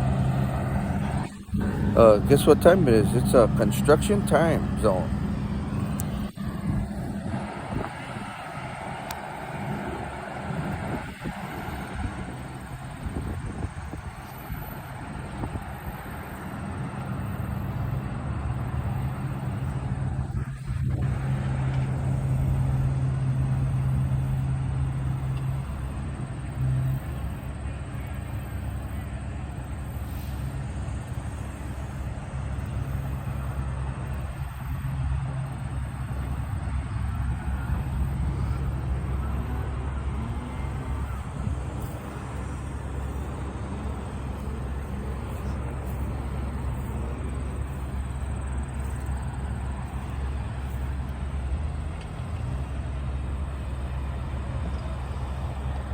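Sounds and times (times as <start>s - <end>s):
diesel engine droning: 0.0s - 55.9s
outdoor noise: 0.0s - 55.9s.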